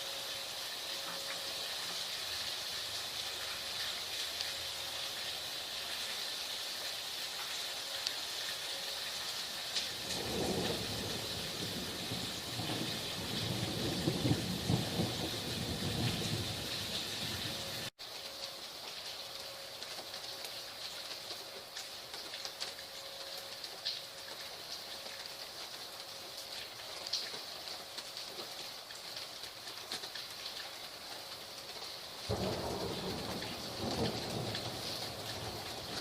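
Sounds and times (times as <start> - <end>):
heavy rain pouring: 0.0 - 36.0
rolling thunder: 10.0 - 17.7, 32.3 - 36.0.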